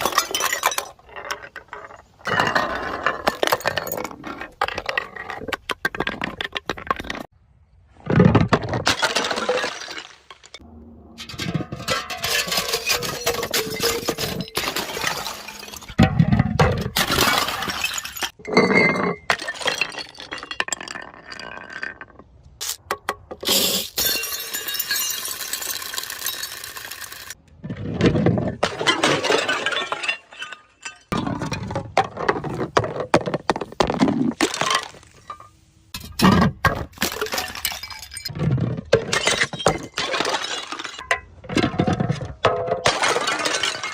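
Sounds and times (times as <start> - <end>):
glass bottles shattering: 0.0 - 4.2, 8.8 - 10.6, 11.2 - 22.0, 23.4 - 27.4, 28.6 - 31.3, 34.4 - 43.9
glass shards tinkling: 23.8 - 27.4.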